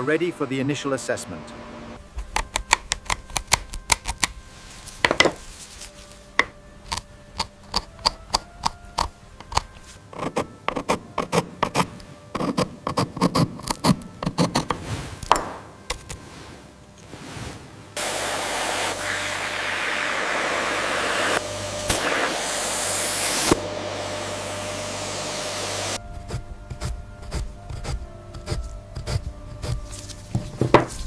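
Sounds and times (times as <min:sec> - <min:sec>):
brushing swish: 0:16.2 - 0:20.0.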